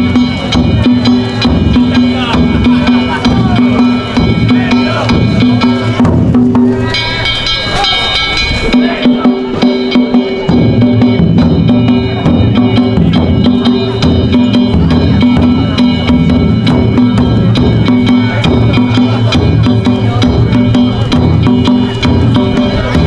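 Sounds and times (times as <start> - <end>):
hand gongs ringing: 0.0 - 23.0
taiko drums: 0.0 - 23.0.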